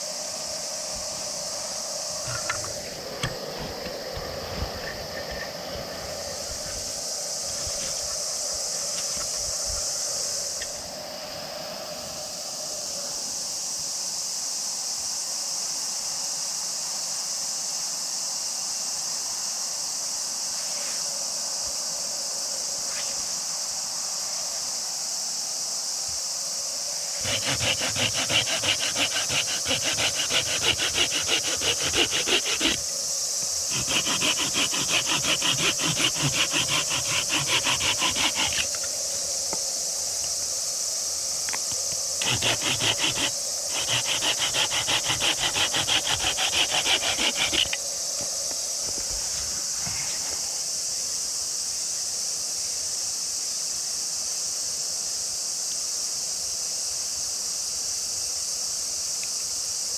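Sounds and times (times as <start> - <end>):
insects droning: 0.0 - 59.9
hand saw cutting wood: 2.2 - 10.8, 27.2 - 32.9, 33.6 - 38.9, 41.6 - 47.8.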